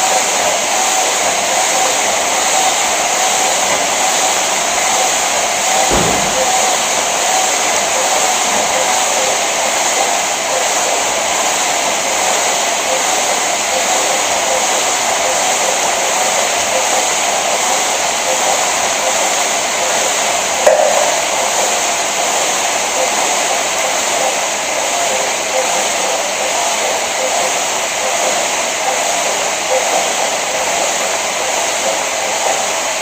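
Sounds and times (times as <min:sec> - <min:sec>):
sharp knock: 0:05.9 - 0:07.1.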